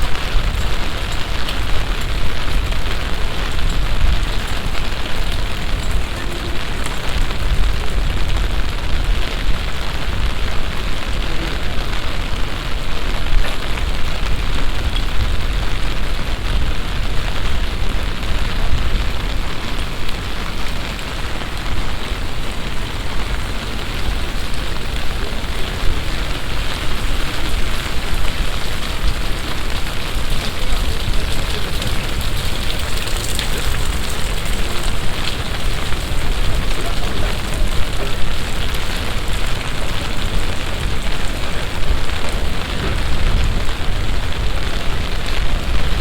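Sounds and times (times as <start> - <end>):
heavy rain falling and splashing: 0.0 - 46.0
deep rumble: 39.7 - 46.0.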